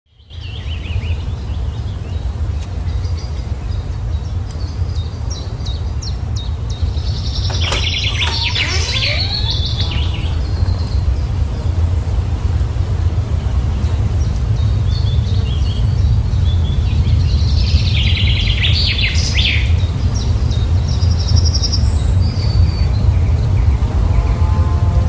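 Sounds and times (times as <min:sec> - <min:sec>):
birds chirping: 0:04.2 - 0:12.4
steady low rumble: 0:06.0 - 0:24.1.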